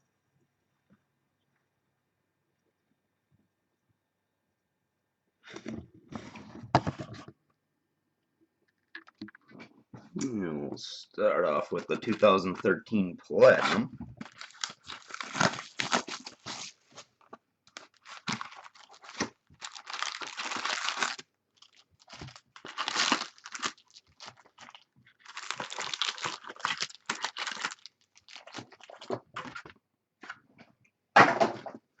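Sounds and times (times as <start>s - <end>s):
wrapping torn and crinkled: 14.2s - 29.6s.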